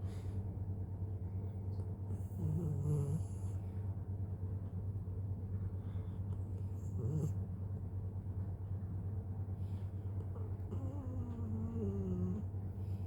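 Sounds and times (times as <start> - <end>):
dog snoring: 2.1 - 3.6, 6.7 - 7.4, 10.3 - 12.5.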